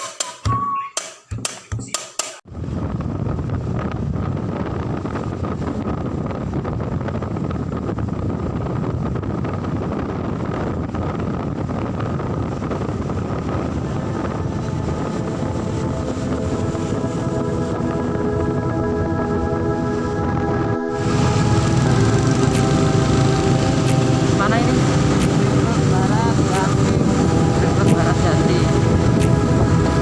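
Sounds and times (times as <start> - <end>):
percussive music: 0.0 - 2.4, 20.9 - 30.0
wind noise on microphone: 2.4 - 30.0.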